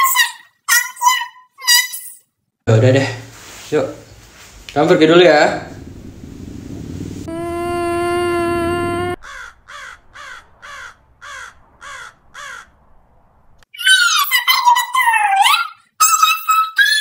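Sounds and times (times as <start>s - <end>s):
low rumble: 4.1s - 13.6s
steady buzzing tone: 5.8s - 9.2s
crow cawing: 9.2s - 12.8s
loud high-pitched voice: 13.8s - 17.0s.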